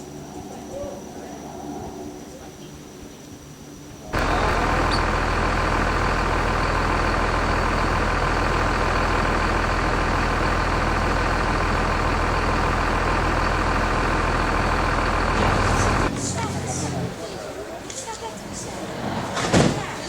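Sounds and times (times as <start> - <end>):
vehicle engine humming: 4.2 - 17.8.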